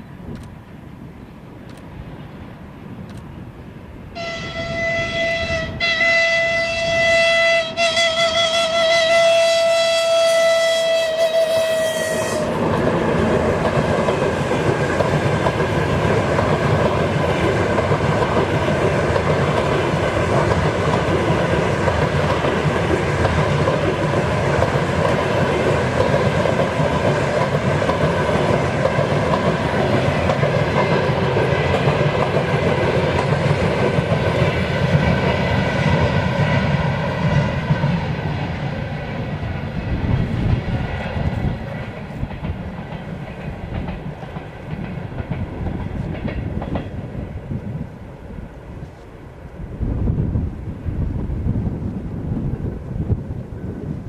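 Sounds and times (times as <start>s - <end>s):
train wheels rumbling on rails: 0.0s - 54.0s
locomotive horn: 4.2s - 12.6s.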